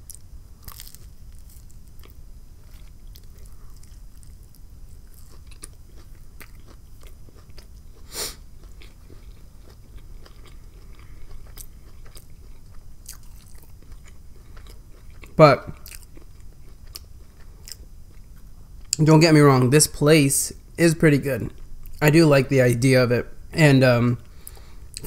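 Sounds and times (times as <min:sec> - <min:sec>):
crunchy chewing: 0:00.0 - 0:19.0.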